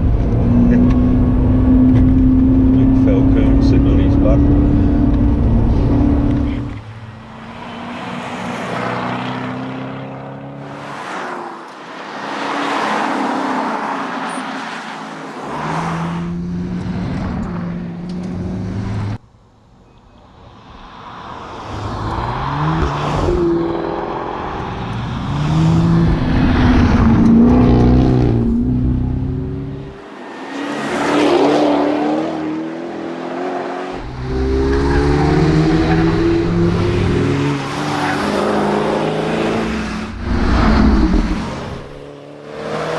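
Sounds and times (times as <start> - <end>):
car engine accelerating: 0.0 - 10.7, 21.9 - 42.9.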